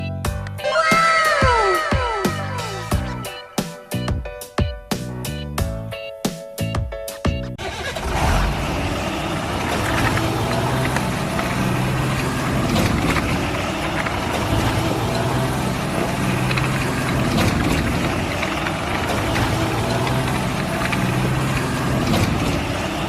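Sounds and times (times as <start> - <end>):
vehicle engine running: 7.6 - 23.0.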